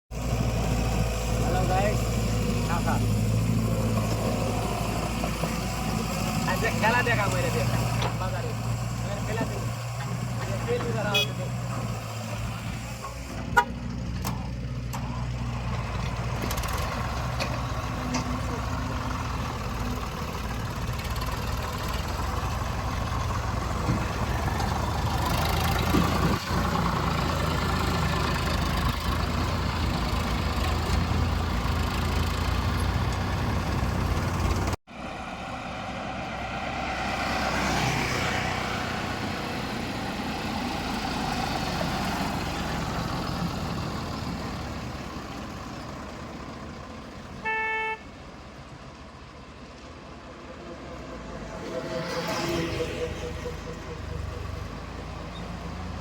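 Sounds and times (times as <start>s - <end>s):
vehicle passing by: 0.1s - 13.0s, 14.0s - 47.3s, 49.9s - 56.0s
diesel engine running: 0.1s - 56.0s
road noise: 0.1s - 56.0s
short horn toot: 47.4s - 48.1s.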